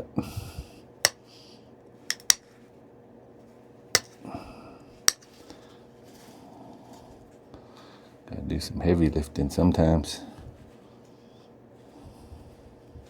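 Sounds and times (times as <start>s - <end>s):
stone clicking on stone: 2.1s - 2.4s, 4.0s - 4.2s.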